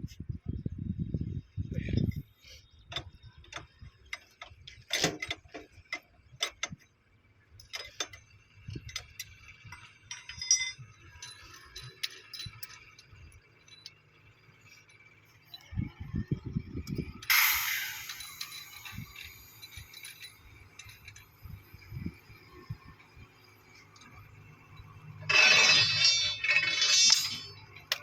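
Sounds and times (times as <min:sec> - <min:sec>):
metallic clicks and knocks: 0:02.9 - 0:06.9, 0:07.6 - 0:14.0, 0:23.7 - 0:28.0.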